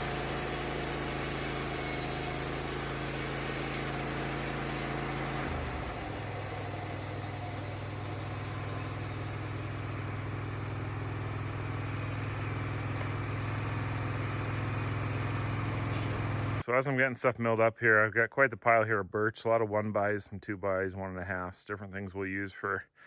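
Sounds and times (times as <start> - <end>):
sawmill engine running: 0.0 - 16.7.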